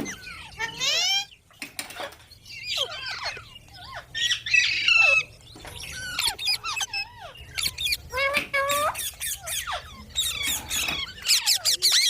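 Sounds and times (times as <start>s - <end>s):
parakeet squawking: 2.0s - 12.0s.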